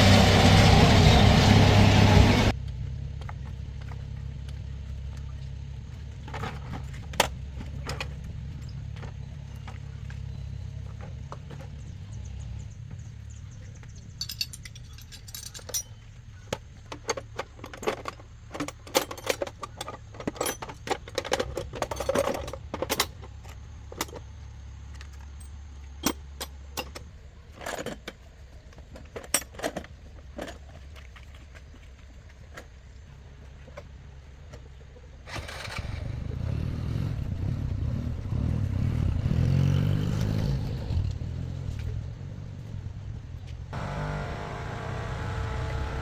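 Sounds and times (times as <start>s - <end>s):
motor rumbling: 0.0s - 14.1s, 35.3s - 46.0s
sharp metallic clinks: 14.1s - 16.0s
low hum: 41.0s - 46.0s.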